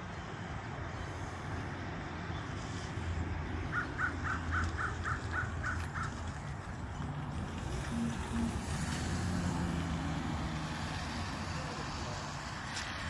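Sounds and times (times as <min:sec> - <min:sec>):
low outdoor rumble: 0:00.0 - 0:13.0
bird calling harsh notes: 0:03.6 - 0:06.3.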